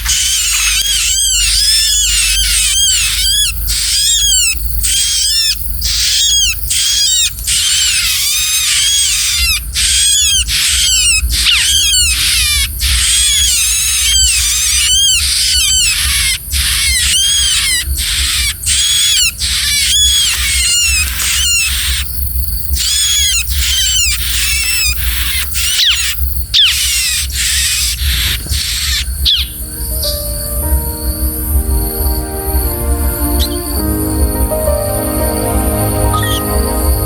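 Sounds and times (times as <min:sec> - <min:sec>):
small bird chirping rapidly: 0:00.0 - 0:31.2.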